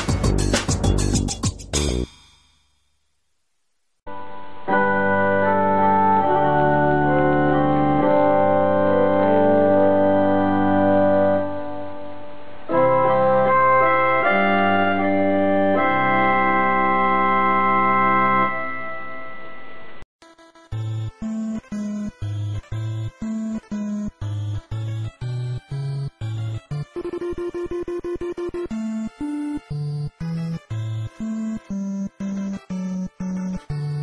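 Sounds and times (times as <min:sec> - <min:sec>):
choppy music tune: 0:00.0 - 0:02.2, 0:04.1 - 0:11.8, 0:20.2 - 0:34.0
organ-like keyboard chords: 0:04.7 - 0:12.0, 0:12.7 - 0:19.6, 0:20.3 - 0:34.0.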